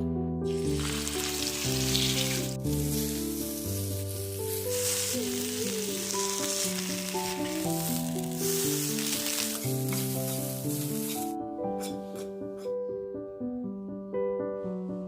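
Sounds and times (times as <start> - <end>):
background music: 0.0 - 15.0
food sizzling in oil: 0.5 - 11.9.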